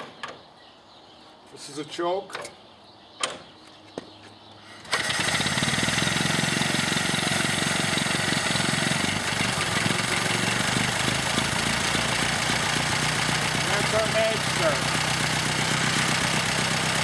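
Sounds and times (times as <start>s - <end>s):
car engine starting and running: 4.8s - 17.0s.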